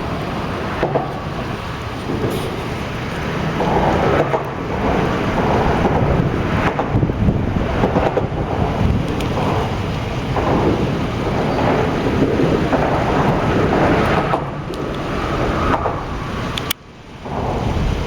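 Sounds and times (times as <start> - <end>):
gusty wind buffeting microphone: 0.0 - 18.0.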